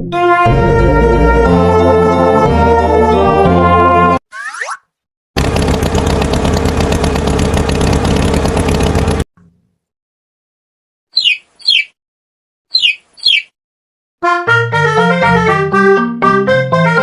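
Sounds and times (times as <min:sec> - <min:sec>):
tractor engine running: 0:05.4 - 0:09.8
short high falling chirps: 0:12.7 - 0:13.5.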